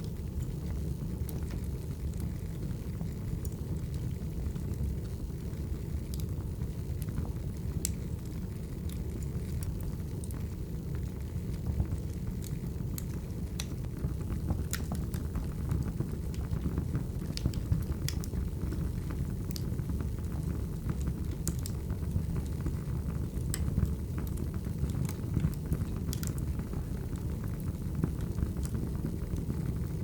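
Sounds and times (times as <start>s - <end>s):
fire rumbling: 0.0s - 30.0s
logs crackling and popping: 0.0s - 30.0s.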